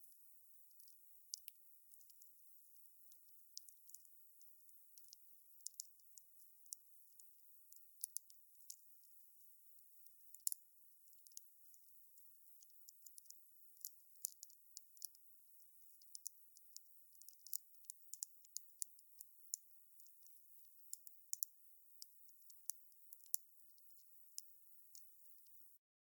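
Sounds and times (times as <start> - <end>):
faint high hiss: 0.0 - 4.6.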